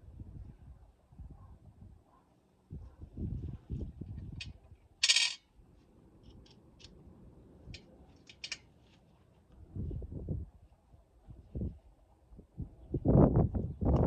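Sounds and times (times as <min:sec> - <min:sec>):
small metal objects clinking: 0:05.0 - 0:05.4.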